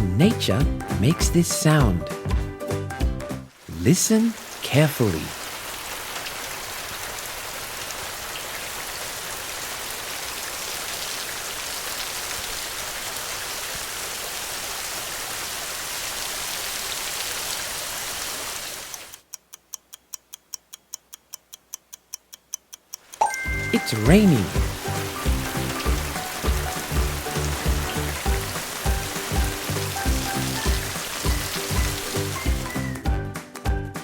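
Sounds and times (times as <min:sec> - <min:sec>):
steady rain falling: 0:03.5 - 0:19.3, 0:23.0 - 0:33.0
fast clock-like ticking: 0:19.2 - 0:27.9.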